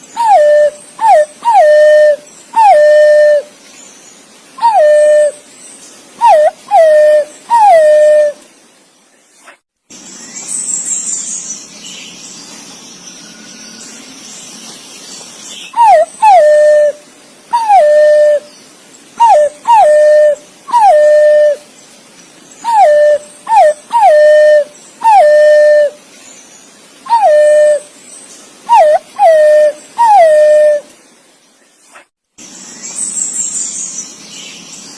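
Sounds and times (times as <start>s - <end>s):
pigeon whistled calls: 0.2s - 3.4s, 6.2s - 8.4s, 15.7s - 17.0s, 17.6s - 18.4s, 19.2s - 21.6s, 22.7s - 26.0s, 27.1s - 27.9s, 28.7s - 30.8s.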